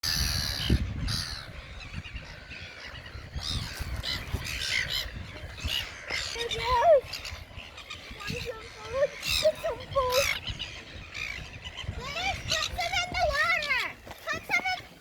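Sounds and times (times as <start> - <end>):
birds squawking: 0.0 - 15.0
child's high voice: 11.9 - 15.0.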